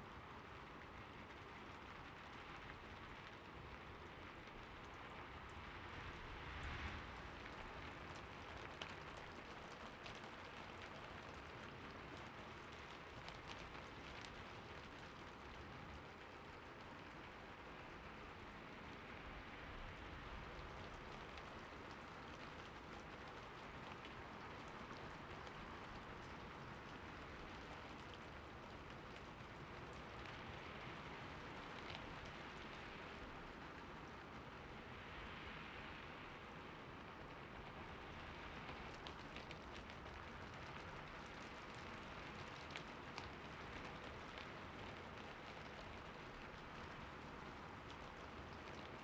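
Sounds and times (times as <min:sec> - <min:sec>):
raindrops ticking on surfaces: 0:00.0 - 0:49.0.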